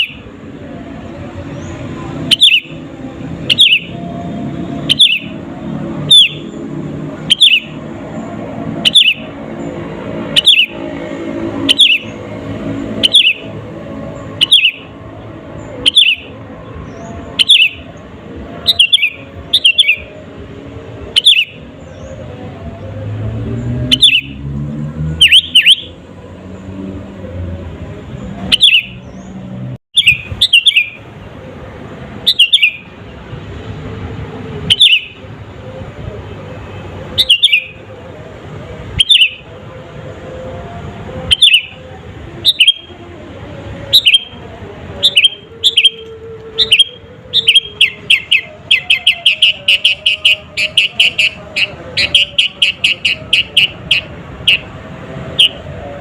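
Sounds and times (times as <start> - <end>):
bird chirping: 0.0 - 0.3, 1.1 - 18.0, 18.6 - 20.2, 21.0 - 22.8, 23.7 - 24.4, 25.1 - 26.0, 28.2 - 31.0, 32.2 - 32.9, 34.6 - 35.3, 37.1 - 37.8, 39.0 - 39.4, 41.2 - 43.0, 43.8 - 55.7.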